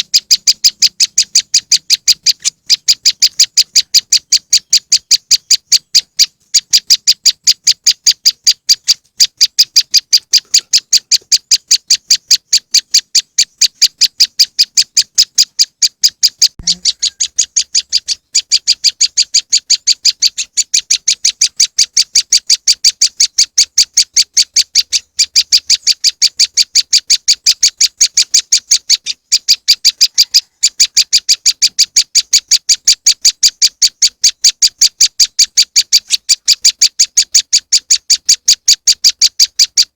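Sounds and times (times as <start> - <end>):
bird chip notes: 0.0 - 18.9.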